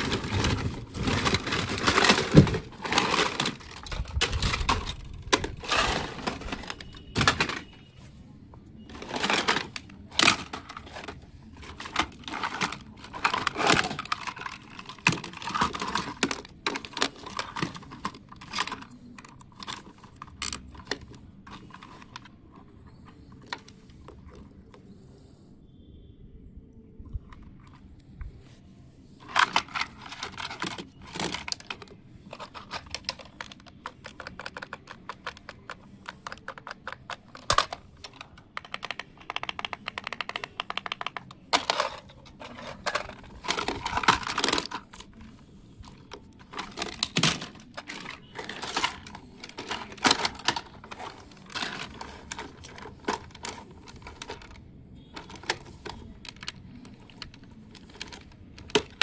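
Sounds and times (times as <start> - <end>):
plastic toy parts clattering: 0.0 - 8.0, 8.8 - 24.7, 29.2 - 59.0.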